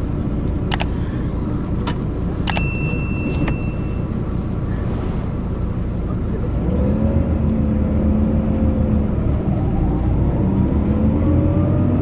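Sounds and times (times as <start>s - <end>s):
coach engine and road rumble: 0.0s - 12.0s
metallic ring: 2.5s - 4.3s.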